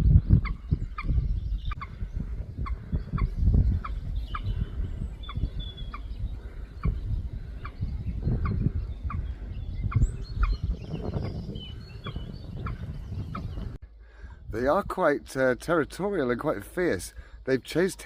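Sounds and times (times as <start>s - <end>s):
moorhens calling: 0.0s - 14.0s
steady low rumble: 0.0s - 17.6s.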